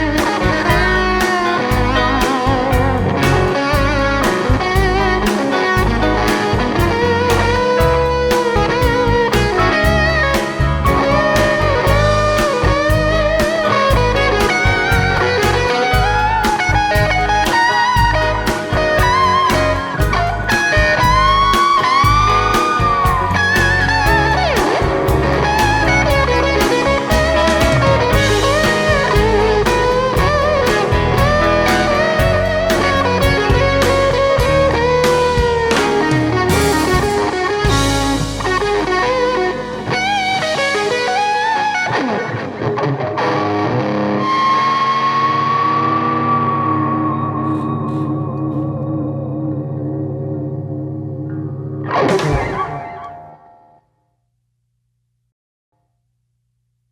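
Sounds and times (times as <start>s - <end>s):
bass and drums: 0.0s - 41.4s
blues-rock band: 0.0s - 53.5s
electric guitar lead: 0.0s - 53.8s.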